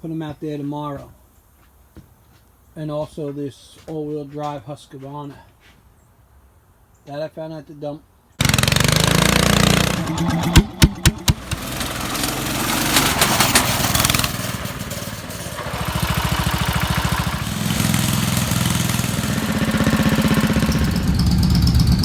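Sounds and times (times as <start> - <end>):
riding mower engine running: 8.4 - 22.0.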